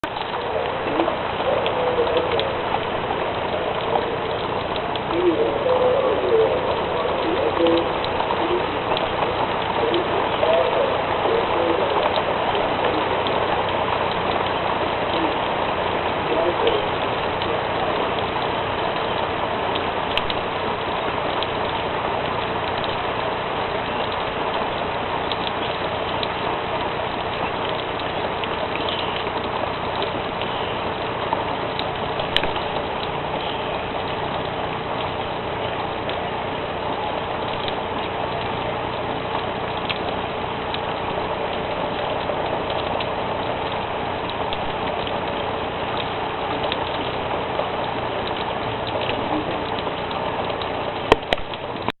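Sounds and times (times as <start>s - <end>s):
light ticks: 0.0s - 15.8s, 16.4s - 51.9s
steady hum: 0.0s - 52.0s
steady rain: 0.0s - 52.0s.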